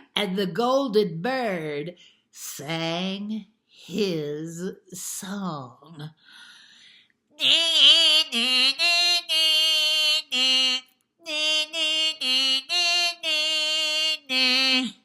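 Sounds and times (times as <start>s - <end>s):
woman singing wordless tune: 7.4s - 15.0s.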